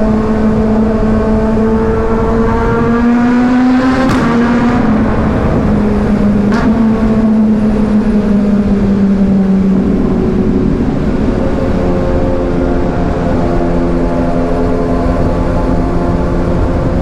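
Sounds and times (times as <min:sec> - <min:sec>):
motorcycle engine cruising: 0:00.0 - 0:17.0
wind rush: 0:00.0 - 0:17.0.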